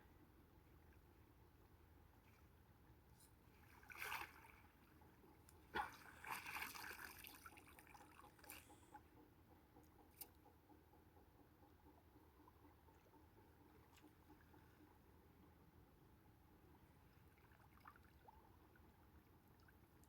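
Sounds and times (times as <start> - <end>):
water splashing and trickling: 3.4 - 8.9, 17.3 - 18.8.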